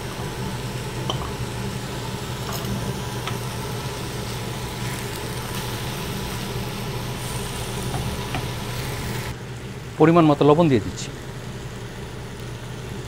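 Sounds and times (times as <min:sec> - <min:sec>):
vegetables sizzling in oil: 0:00.0 - 0:09.4
steady low hum: 0:00.0 - 0:13.0.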